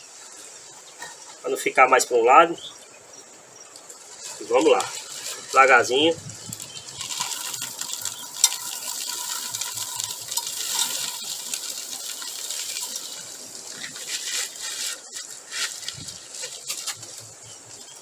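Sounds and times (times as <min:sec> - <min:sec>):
gravel poured into a box: 0:04.2 - 0:17.4.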